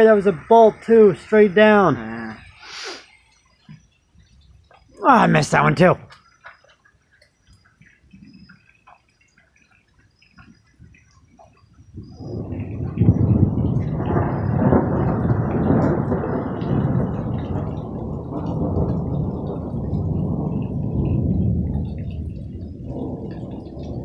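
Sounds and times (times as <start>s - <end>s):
rolling thunder rumble: 11.8s - 24.0s.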